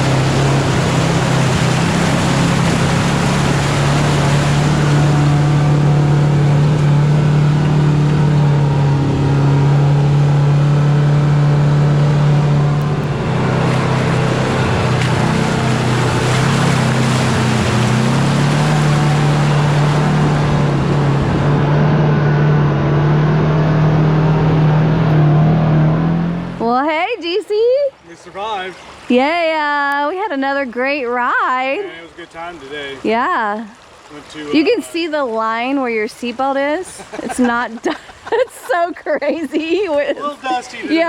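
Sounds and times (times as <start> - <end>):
utility vehicle engine running: 0.0 - 26.8.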